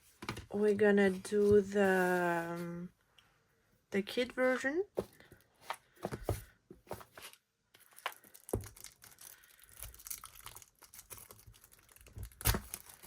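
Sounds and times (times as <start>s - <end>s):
packaging crinkling and rustling: 7.0s - 13.0s.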